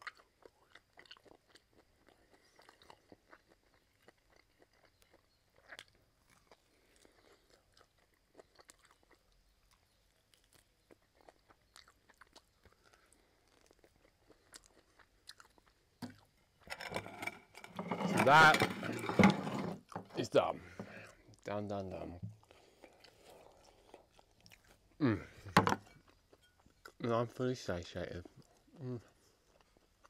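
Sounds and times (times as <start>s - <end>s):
man chewing and biting: 0.0s - 16.6s, 22.4s - 25.0s.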